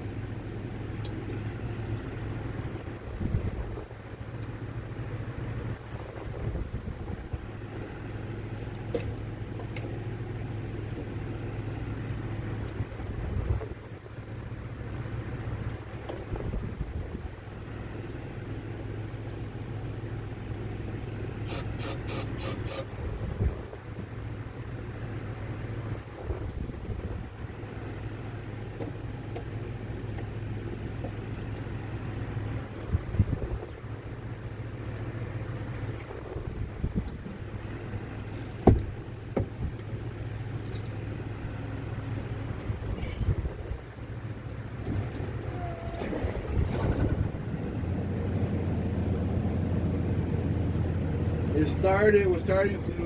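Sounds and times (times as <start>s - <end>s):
motorhome engine droning: 0.0s - 53.0s
engine knocks: 35.6s - 41.0s, 42.5s - 53.0s.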